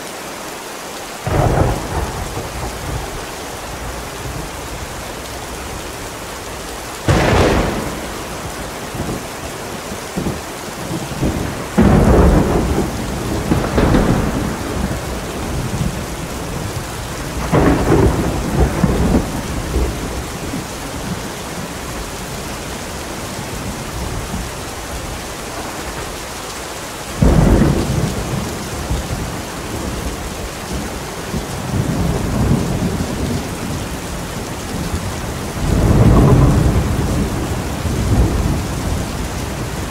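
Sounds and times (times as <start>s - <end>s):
heavy rain: 0.0s - 39.9s
thunder cracks and rumbles: 1.2s - 4.6s, 7.0s - 21.7s, 27.2s - 33.8s, 34.4s - 39.9s.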